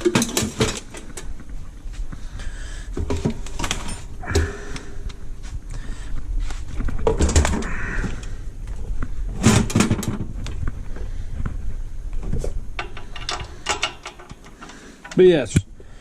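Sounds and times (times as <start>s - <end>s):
hand tools and metal parts clattering: 0.0s - 1.4s, 2.9s - 5.2s, 12.3s - 15.6s.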